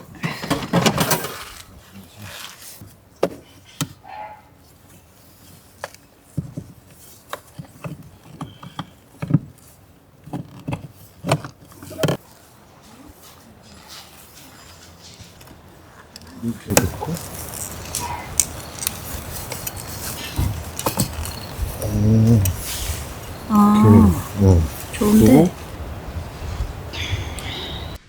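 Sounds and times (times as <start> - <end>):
objects knocking and clunking: 0.0 - 1.6, 6.3 - 12.2, 15.1 - 22.6.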